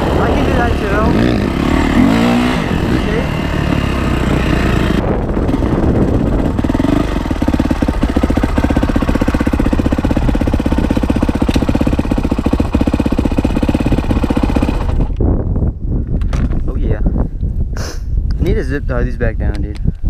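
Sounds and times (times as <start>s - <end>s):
dirt bike engine running: 0.0s - 15.6s.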